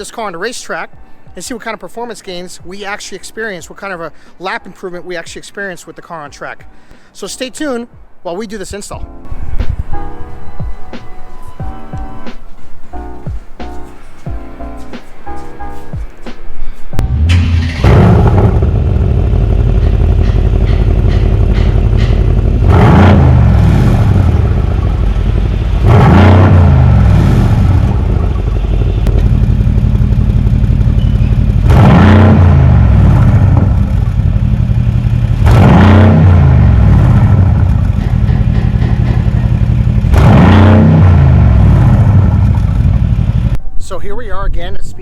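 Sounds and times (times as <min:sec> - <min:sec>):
car engine revving: 0:17.0 - 0:43.6.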